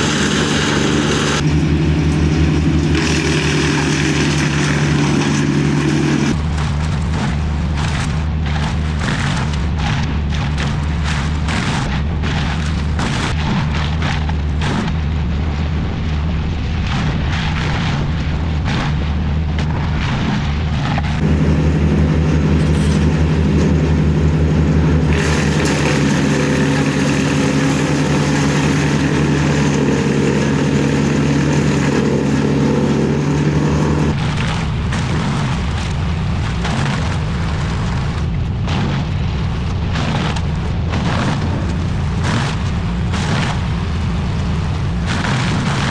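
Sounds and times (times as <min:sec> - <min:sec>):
heavy machine engine running: 0:00.0 - 0:06.4, 0:21.2 - 0:34.2.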